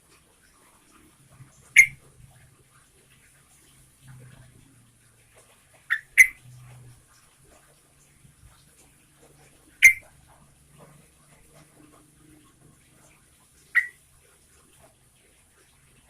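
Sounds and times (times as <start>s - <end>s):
bird sharp call notes: 1.8s - 2.0s, 5.9s - 6.4s, 9.8s - 10.0s.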